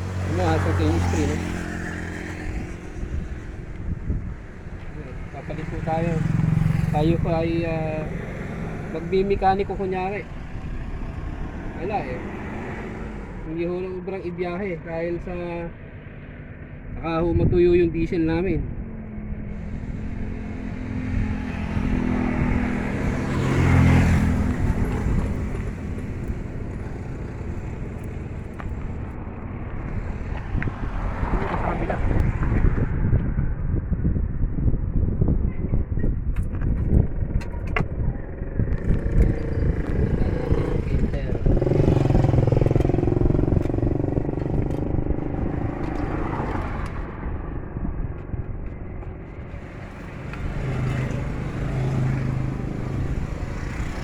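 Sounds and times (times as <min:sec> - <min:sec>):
vehicle engine running: 0:00.0 - 0:13.5, 0:18.7 - 0:32.2, 0:36.2 - 0:54.0.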